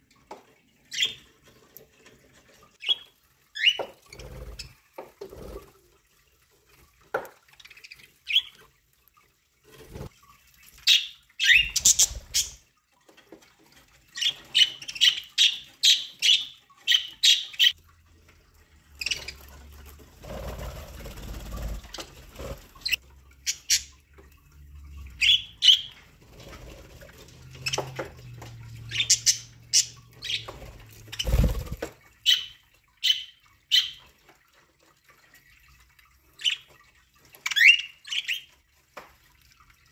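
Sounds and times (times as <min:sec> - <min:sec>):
budgerigars chirping and squawking: 0:10.8 - 0:12.6, 0:14.2 - 0:17.8, 0:21.8 - 0:23.9, 0:25.2 - 0:26.0, 0:28.7 - 0:34.1.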